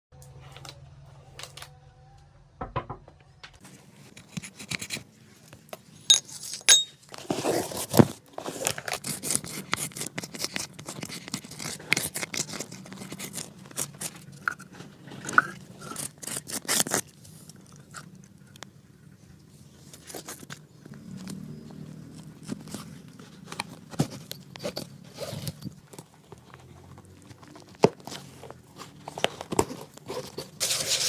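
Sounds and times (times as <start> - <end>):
brush scraping a shoe: 30.2 - 31.0.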